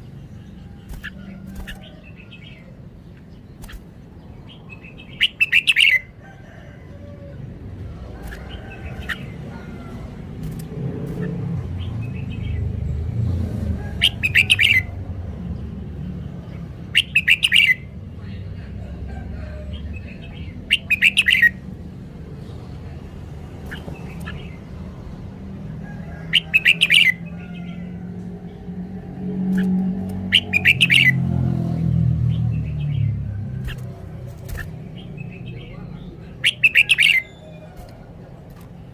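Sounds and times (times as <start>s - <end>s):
bulbul singing: 0.0s - 6.2s, 14.0s - 15.0s, 16.8s - 18.0s, 20.0s - 21.7s, 23.4s - 25.3s, 26.3s - 27.8s, 29.4s - 38.9s.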